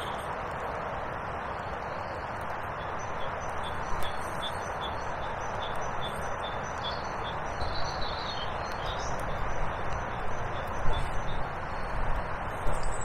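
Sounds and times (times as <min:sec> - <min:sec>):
rushing background noise: 0:00.0 - 0:13.0
small birds chirping: 0:01.3 - 0:13.0.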